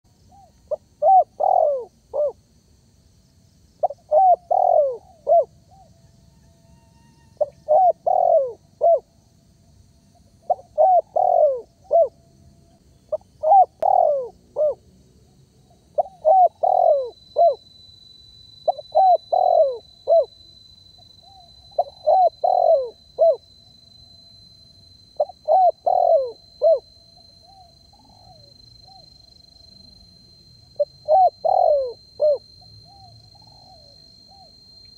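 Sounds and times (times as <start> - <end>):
dove cooing: 0.3 - 2.4, 3.8 - 5.9, 7.4 - 9.1, 10.5 - 12.1, 13.1 - 14.8, 16.0 - 17.6, 18.7 - 20.3, 21.2 - 23.4, 25.2 - 26.8, 30.8 - 34.5.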